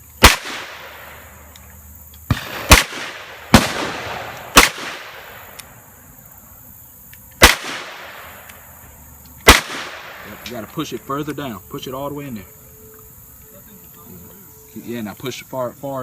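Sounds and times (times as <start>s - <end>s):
pistol gunshots with echo: 0.2s - 1.4s, 2.3s - 5.7s, 7.4s - 8.6s, 9.4s - 10.7s.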